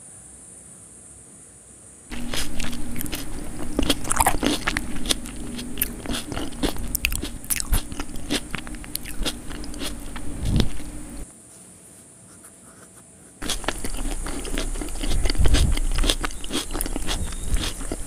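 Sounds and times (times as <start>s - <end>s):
wet mouth clicks: 2.1s - 11.2s, 12.8s - 18.0s
chewing and crunching food: 2.1s - 11.3s, 12.8s - 18.0s.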